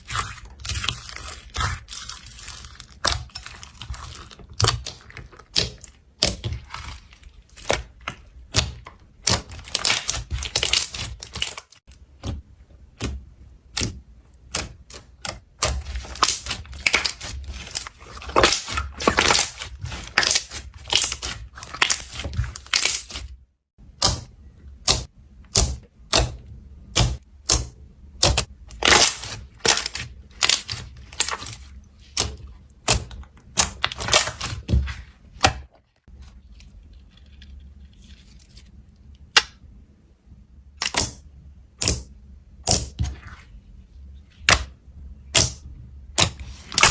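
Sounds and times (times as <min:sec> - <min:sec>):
slime clicking and crackling: 0:00.0 - 0:12.3, 0:13.0 - 0:35.7, 0:40.8 - 0:41.2.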